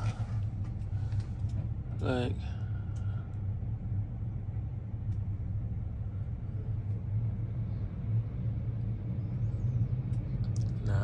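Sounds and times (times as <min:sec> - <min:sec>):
truck diesel engine idling: 0:00.0 - 0:01.4.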